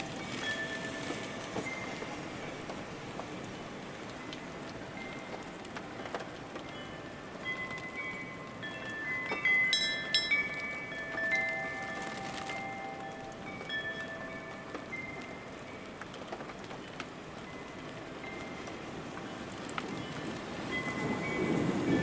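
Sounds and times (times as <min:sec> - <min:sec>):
ringing chime tones: 0:00.0 - 0:02.2, 0:06.8 - 0:15.8
steady rain: 0:00.0 - 0:22.0.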